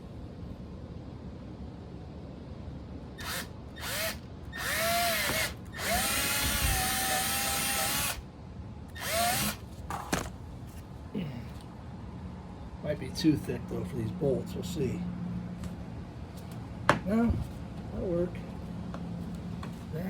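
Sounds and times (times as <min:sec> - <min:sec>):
power drill drilling: 0:03.2 - 0:08.2, 0:09.0 - 0:09.6.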